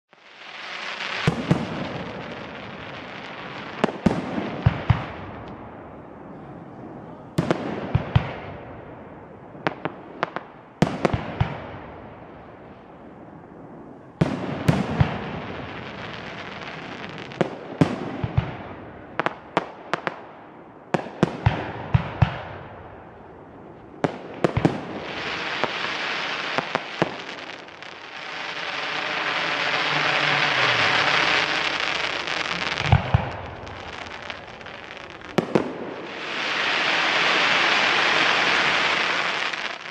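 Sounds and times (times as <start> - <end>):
fireworks banging and crackling: 0.1 - 39.9
steady hiss: 23.0 - 39.9.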